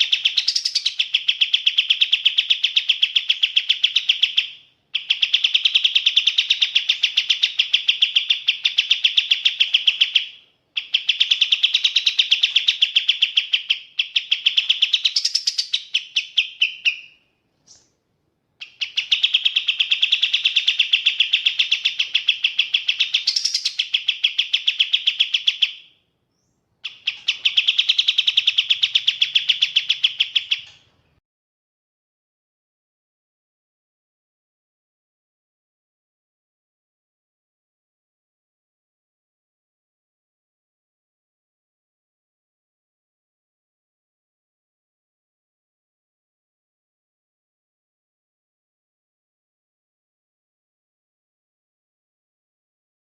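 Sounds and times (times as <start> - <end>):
songbird singing rapid trills: 0.0 - 17.9, 18.6 - 30.9.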